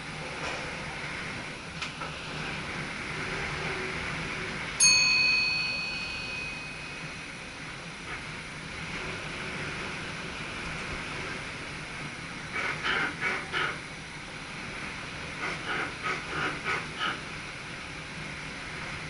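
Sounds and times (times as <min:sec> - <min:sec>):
electric train cab hum: 0:00.0 - 0:19.0
bell chime ding: 0:04.8 - 0:07.4.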